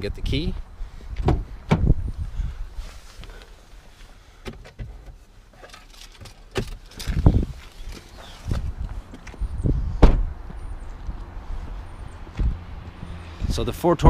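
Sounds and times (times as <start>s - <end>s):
wind buffeting microphone: 0.0s - 2.9s, 7.0s - 13.7s
heavy thump: 1.2s - 2.0s, 10.0s - 10.3s.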